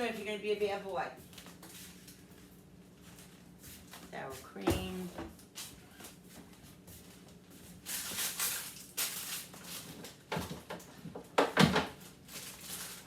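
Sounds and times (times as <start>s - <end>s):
packaging rustling: 7.8s - 10.3s, 12.0s - 13.0s.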